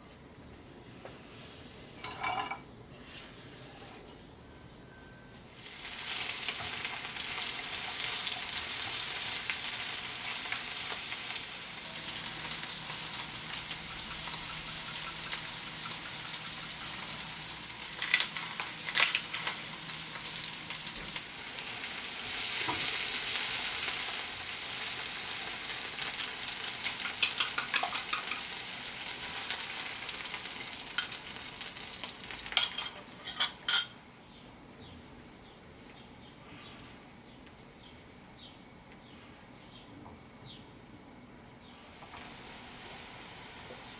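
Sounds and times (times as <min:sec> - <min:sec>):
food sizzling in a frying pan: 0:05.6 - 0:33.9, 0:42.0 - 0:43.9
stirring taps and scrapes: 0:13.9 - 0:17.3.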